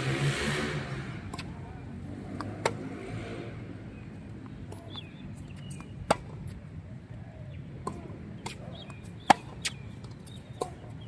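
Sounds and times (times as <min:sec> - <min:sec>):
tennis ball struck by racket: 0:01.2 - 0:01.6, 0:02.3 - 0:02.9, 0:05.7 - 0:06.6, 0:07.8 - 0:10.9
tennis ball bouncing on court: 0:01.3 - 0:01.6, 0:02.3 - 0:02.9, 0:04.7 - 0:06.6, 0:07.8 - 0:11.0
birds chirping faintly: 0:03.8 - 0:11.0.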